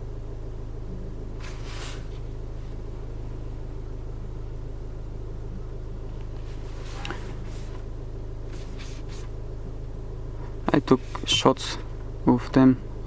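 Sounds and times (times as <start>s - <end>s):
diesel engine idling: 0.0s - 13.0s
soft rustles: 1.4s - 3.0s, 6.2s - 9.4s.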